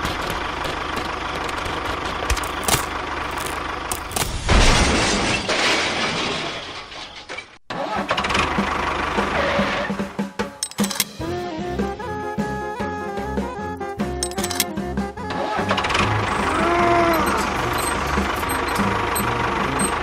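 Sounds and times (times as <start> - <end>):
clicks: 10.6 - 11.2, 14.2 - 14.7, 17.1 - 20.0
small engine running: 15.4 - 20.0.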